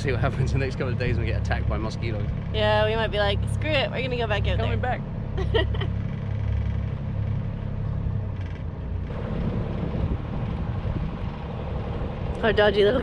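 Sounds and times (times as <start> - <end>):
boat engine drone: 0.0 - 13.0
rough rushing noise: 5.8 - 12.6.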